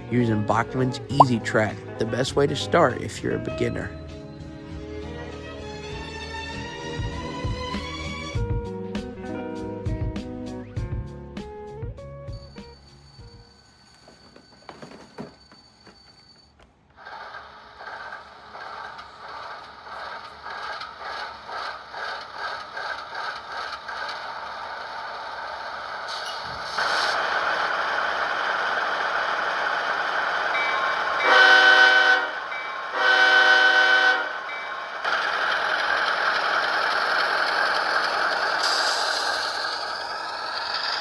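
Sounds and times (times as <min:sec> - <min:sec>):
train wheels clacking on rails: 0:16.9 - 0:26.6, 0:34.2 - 0:41.0
train horn blasts: 0:31.2 - 0:34.4.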